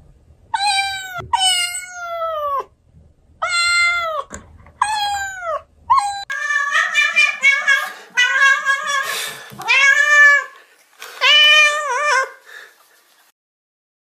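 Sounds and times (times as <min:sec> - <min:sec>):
cat meowing: 0:00.5 - 0:02.7, 0:03.4 - 0:10.6, 0:11.2 - 0:12.4.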